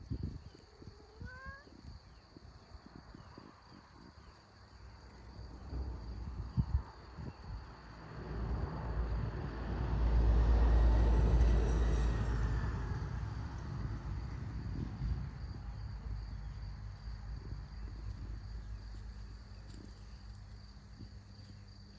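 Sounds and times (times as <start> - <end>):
crickets chirping: 0.0 - 21.9
vehicle passing by: 7.9 - 16.2.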